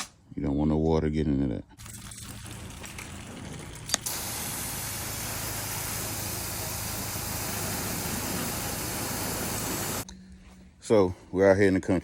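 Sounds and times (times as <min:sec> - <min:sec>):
pressure washer engine hum: 0:01.8 - 0:10.0
high-pressure spray hissing: 0:04.0 - 0:10.0.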